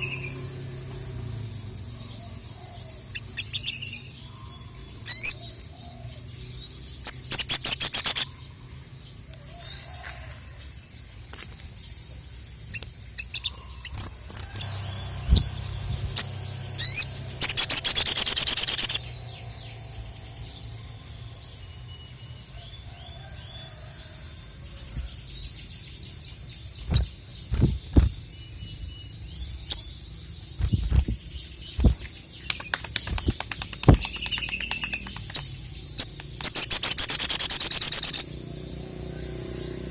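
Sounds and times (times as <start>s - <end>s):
bird singing fast high trills: 6.8s - 8.6s, 12.6s - 22.4s, 32.6s - 39.9s
bird chips and short calls: 7.0s - 8.4s, 12.6s - 19.2s, 30.6s - 38.4s.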